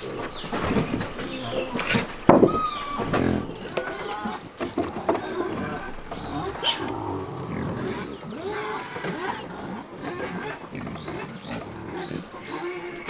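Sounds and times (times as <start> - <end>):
animal calls rising and falling: 5.1 - 9.5.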